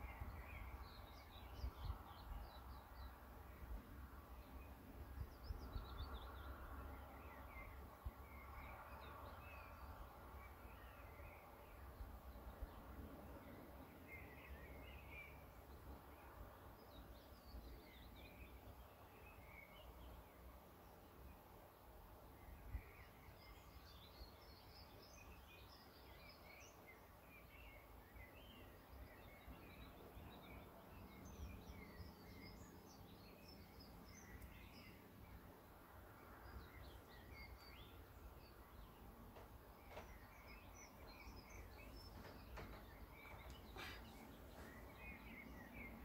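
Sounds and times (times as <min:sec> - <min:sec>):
songbirds chirping: 0:00.0 - 0:46.0.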